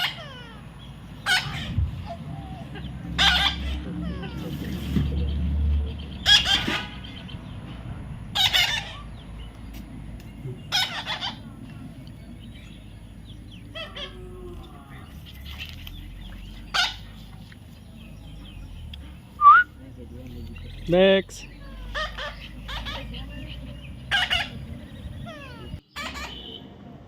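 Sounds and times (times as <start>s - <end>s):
parrot squawking: 0.0s - 1.8s, 2.5s - 4.8s, 6.2s - 7.0s, 8.4s - 9.1s, 10.7s - 11.5s, 16.7s - 17.1s, 21.6s - 23.2s, 24.1s - 24.6s, 25.2s - 26.5s.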